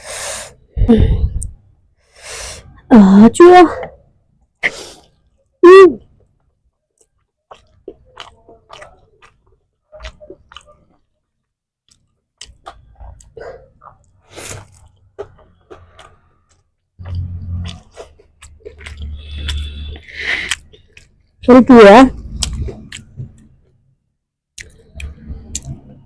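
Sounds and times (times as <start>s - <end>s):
chewing with crisp crunches: 6.1s - 21.5s, 22.1s - 23.9s, 24.5s - 26.0s
wet mouth clicks: 7.0s - 11.0s, 22.2s - 23.6s, 24.6s - 26.0s.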